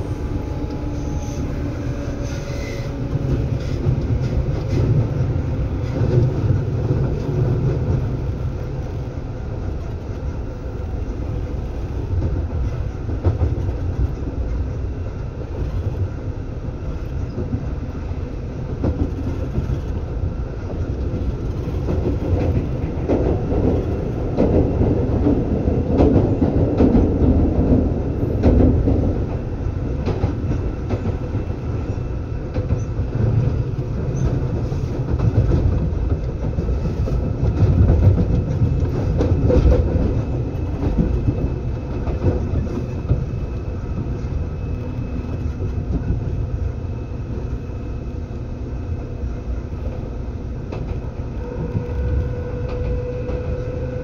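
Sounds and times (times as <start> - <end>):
steady train hum: 0.0 - 54.0
train wheels rumbling on rail: 0.0 - 54.0.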